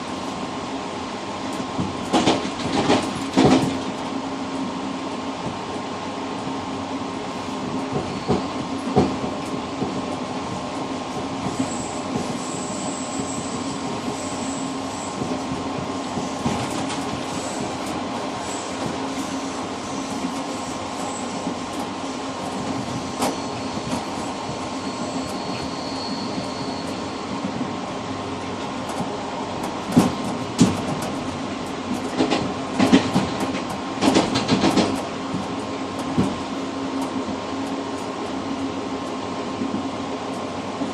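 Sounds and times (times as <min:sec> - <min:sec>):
train rumble and hum: 0:00.0 - 0:40.9
faint high squeal: 0:07.9 - 0:08.9, 0:11.6 - 0:15.2, 0:23.0 - 0:27.4.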